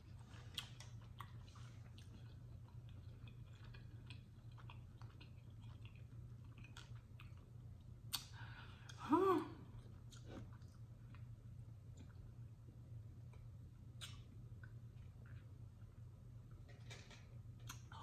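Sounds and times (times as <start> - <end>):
person chewing: 0.0 - 9.0, 9.6 - 12.5, 13.2 - 15.9
person humming mm: 9.0 - 9.6
wet mouth clicks: 14.0 - 14.7.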